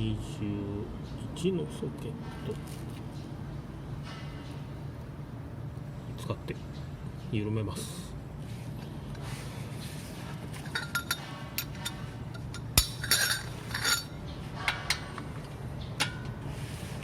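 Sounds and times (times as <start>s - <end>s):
steady low hum: 0.0s - 17.0s
steel hand tools clinking: 10.6s - 14.1s.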